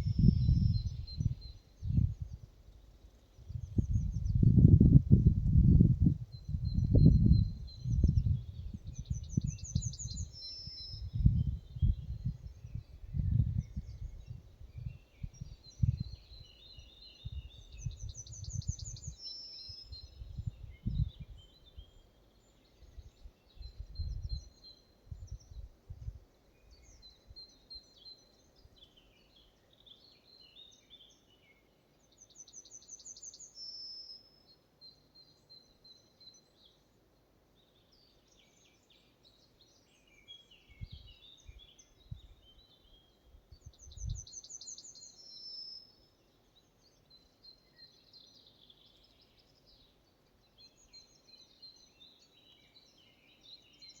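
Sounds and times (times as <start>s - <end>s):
bird chirps: 6.3s - 25.7s, 37.6s - 54.0s.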